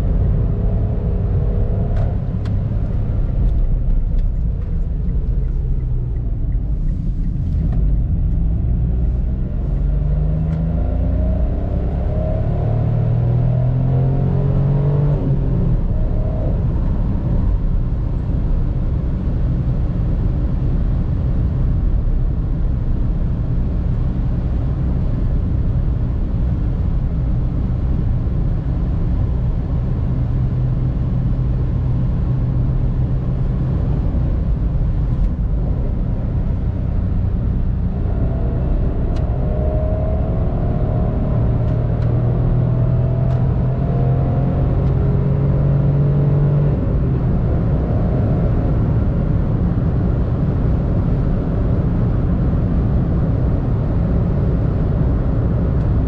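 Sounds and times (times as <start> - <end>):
car engine running: 0.0 - 10.0
road and tyre rumble: 0.0 - 56.0.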